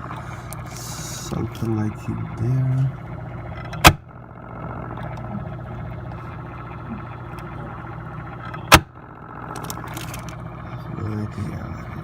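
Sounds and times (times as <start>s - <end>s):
refrigerator running hum: 0.0s - 12.0s
refrigerator knocking: 8.6s - 9.0s.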